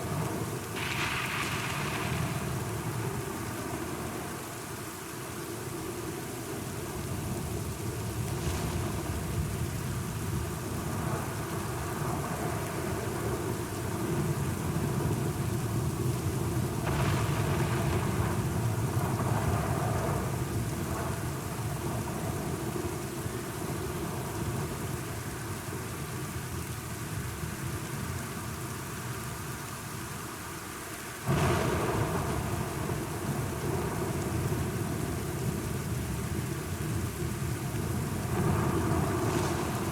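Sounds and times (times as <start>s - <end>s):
steady rain: 0.0s - 39.9s
thunder rumbling: 16.4s - 22.4s, 31.3s - 35.5s, 37.9s - 39.9s.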